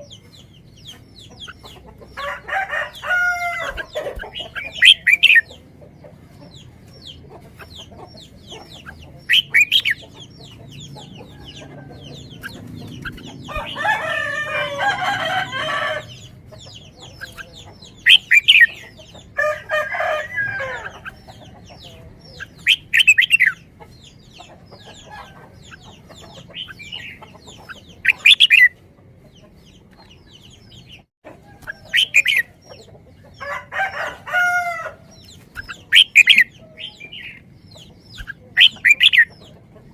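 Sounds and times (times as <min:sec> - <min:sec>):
chickens clucking and squawking: 0:00.0 - 0:39.9
rooster crowing: 0:02.2 - 0:04.1, 0:13.4 - 0:16.2, 0:19.4 - 0:21.0, 0:33.4 - 0:35.1.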